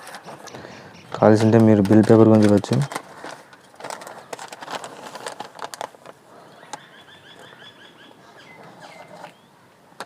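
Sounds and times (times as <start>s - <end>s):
paper rustling and crinkling: 0.0s - 6.2s
bird chirping: 0.2s - 1.6s, 6.4s - 9.7s.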